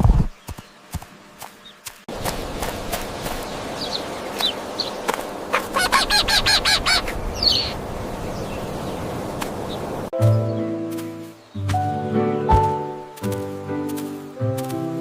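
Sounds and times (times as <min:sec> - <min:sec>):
chickens clucking: 0:03.3 - 0:07.8
music: 0:10.2 - 0:15.0.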